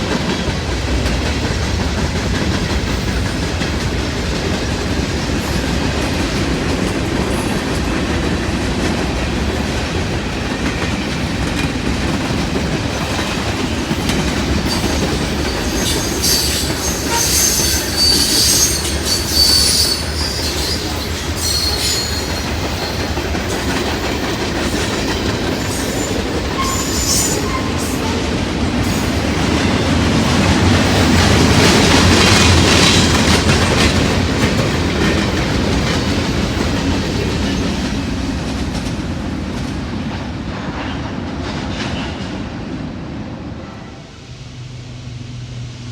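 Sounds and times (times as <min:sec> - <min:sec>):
wheels clickety-clack on rails: 0:00.0 - 0:43.4
railroad cars rumbling: 0:00.0 - 0:45.9
high-pitched wheel squeal: 0:14.7 - 0:22.5, 0:25.8 - 0:28.2.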